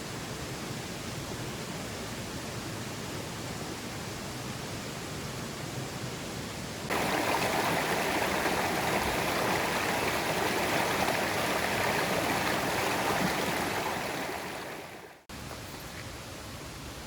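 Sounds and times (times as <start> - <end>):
water rushing over rocks: 6.9 - 15.2.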